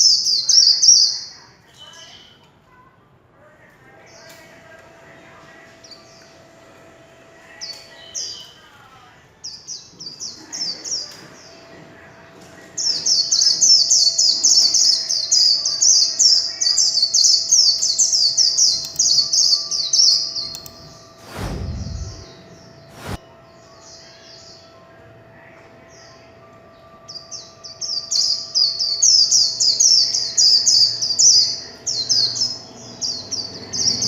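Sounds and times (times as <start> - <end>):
bird singing high-pitched song: 12.8 - 21.2, 25.9 - 34.0.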